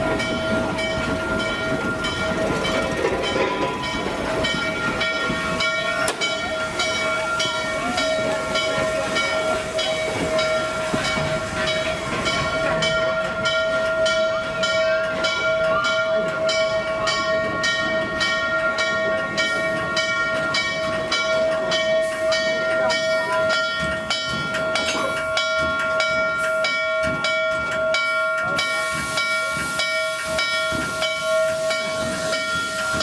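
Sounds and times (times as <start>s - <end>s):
hissing steam: 0.0s - 15.7s, 16.5s - 33.0s
locomotive bell ringing: 0.0s - 33.0s.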